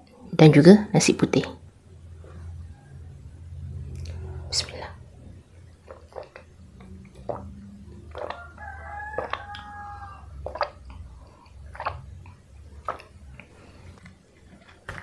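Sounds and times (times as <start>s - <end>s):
rooster crowing: 1.4s - 14.0s
crunchy eating: 4.0s - 14.9s.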